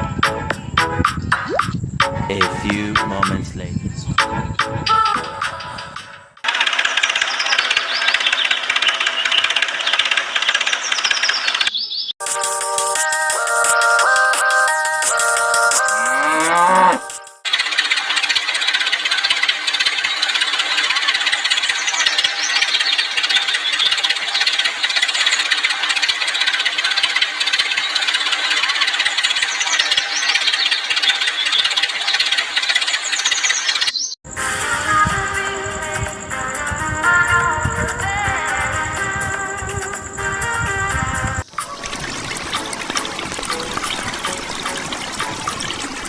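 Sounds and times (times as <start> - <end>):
music: 0.0 - 6.4, 12.2 - 17.4, 34.3 - 46.0
fast mechanical rattle: 6.2 - 11.7, 17.4 - 33.9.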